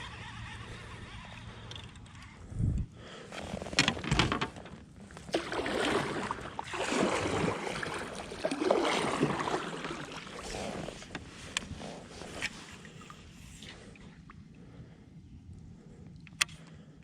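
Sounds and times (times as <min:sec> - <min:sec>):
paddle splashing through water: 0:05.0 - 0:14.2.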